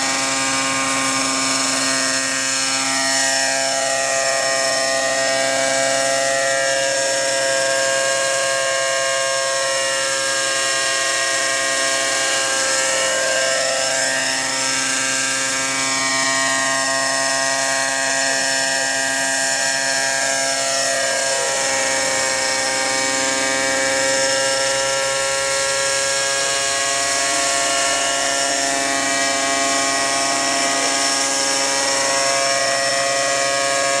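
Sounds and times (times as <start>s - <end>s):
model helicopter engine running: 0.0s - 34.0s
rotors whirring: 9.7s - 34.0s.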